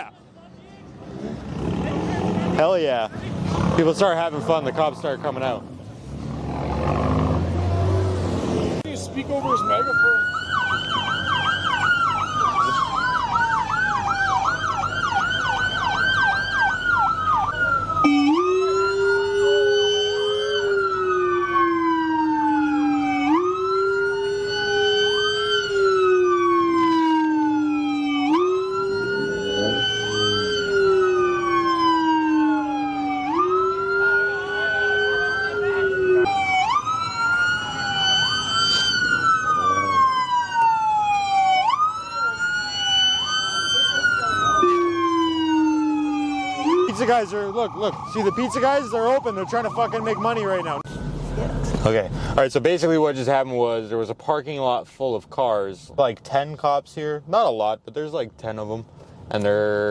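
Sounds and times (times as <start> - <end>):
police sirens wailing: 1.4 - 51.9
police siren fast yelp: 9.3 - 51.0.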